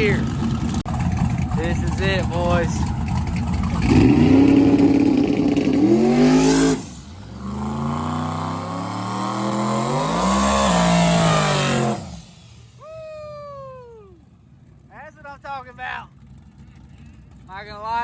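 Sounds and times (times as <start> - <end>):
drag-racing engine revving: 0.0 - 12.8.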